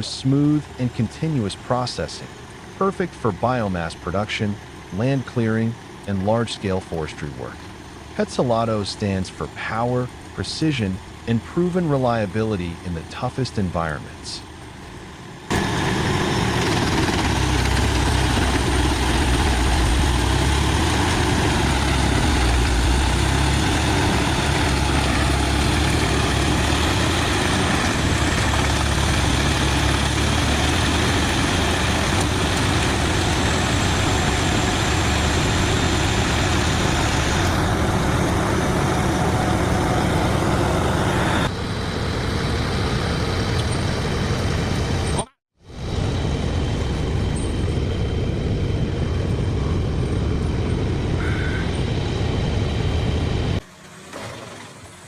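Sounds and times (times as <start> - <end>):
wood chipper running: 15.4 - 44.6.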